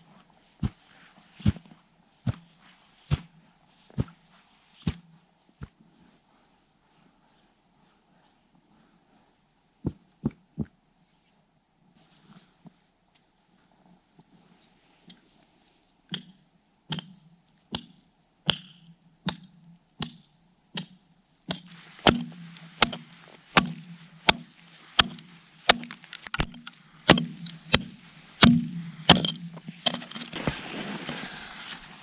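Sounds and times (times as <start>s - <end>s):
hand tool chopping ice: 20.8s - 30.6s.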